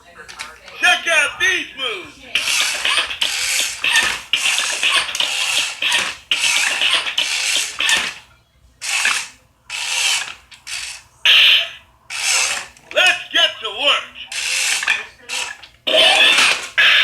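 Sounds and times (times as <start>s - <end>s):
toy gears whirring and ratcheting: 2.4s - 12.9s, 14.2s - 17.0s.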